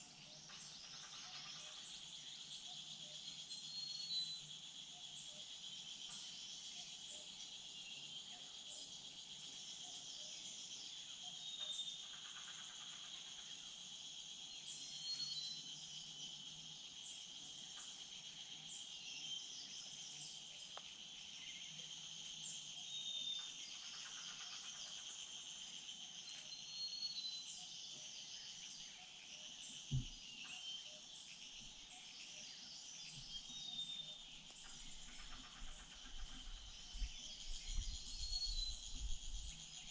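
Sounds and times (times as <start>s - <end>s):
insects chorus: 0.0s - 39.9s
sudden low thump: 29.9s - 30.2s.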